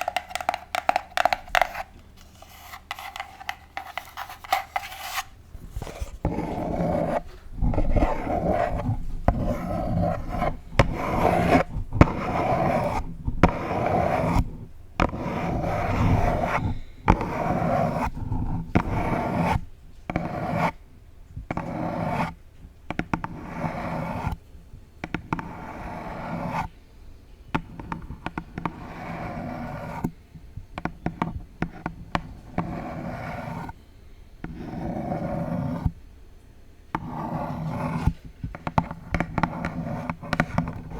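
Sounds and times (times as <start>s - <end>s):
sharp taps: 0.0s - 2.0s
long nails scratching a box: 0.0s - 20.8s, 27.6s - 30.1s, 30.8s - 33.8s, 34.4s - 36.0s, 37.0s - 40.9s.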